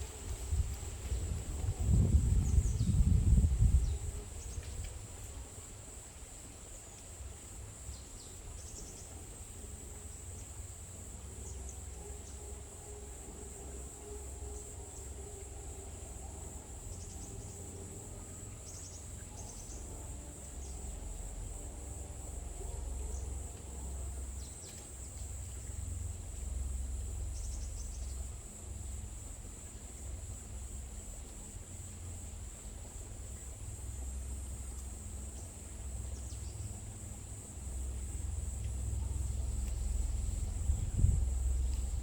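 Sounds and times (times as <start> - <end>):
high-pitched insect trill: 0.0 - 42.0
low rumble: 11.3 - 42.0.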